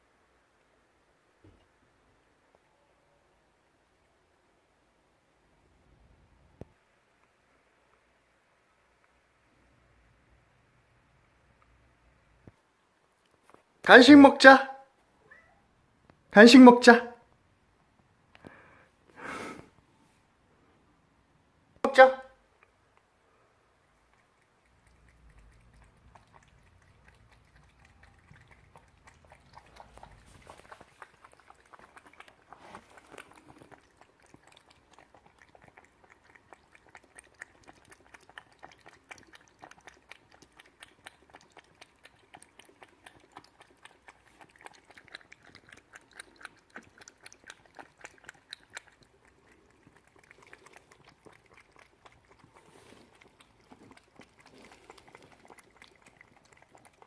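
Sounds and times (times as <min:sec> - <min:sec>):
cat licking wet lapping: 0:23.8 - 0:57.0.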